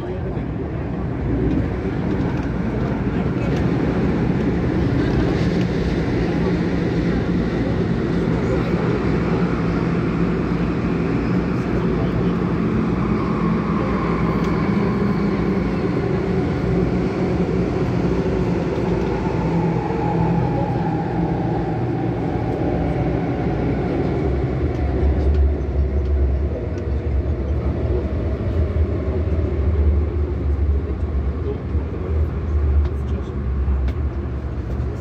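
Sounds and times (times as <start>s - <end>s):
deep train rumble: 0.0s - 35.0s
train wheel and motor noise: 0.0s - 35.0s.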